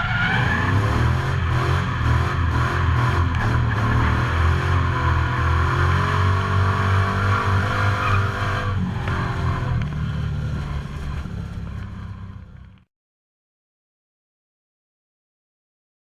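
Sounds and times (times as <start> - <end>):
engine running hard: 0.0 - 12.8.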